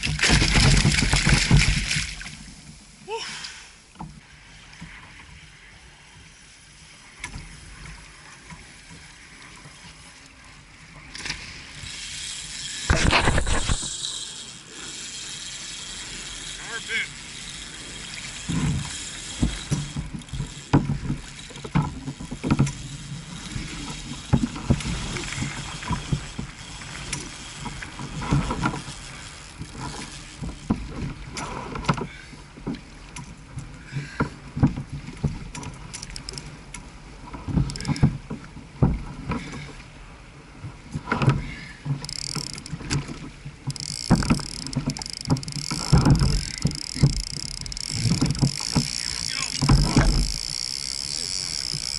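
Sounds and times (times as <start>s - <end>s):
water sloshing against kayak hull: 0.0s - 3.0s, 12.8s - 14.0s, 16.1s - 51.9s
thumps: 43.7s - 50.5s
high-pitched buzz: 43.8s - 51.9s.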